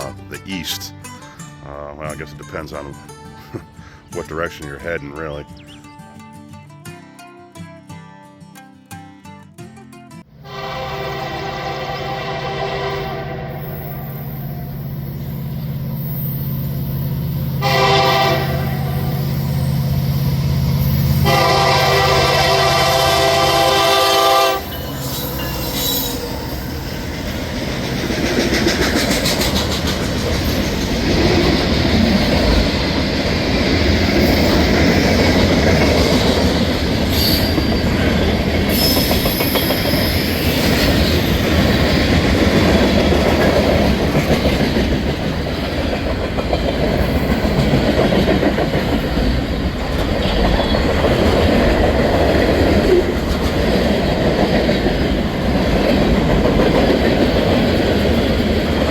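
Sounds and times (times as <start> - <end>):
freight train rumbling past: 10.3 - 58.9
high wheel squeals: 24.6 - 27.2, 37.1 - 38.0, 38.7 - 40.7
train wheel clatter: 25.6 - 58.9.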